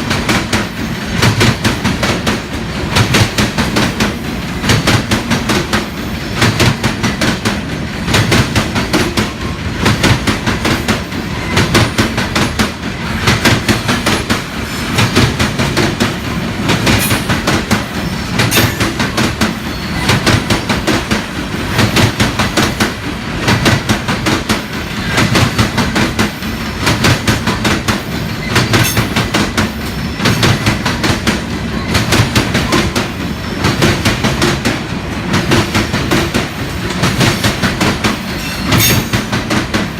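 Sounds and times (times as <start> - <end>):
continuous train rumble: 0.0 - 39.9
train wheels clacking on rails: 0.0 - 39.9.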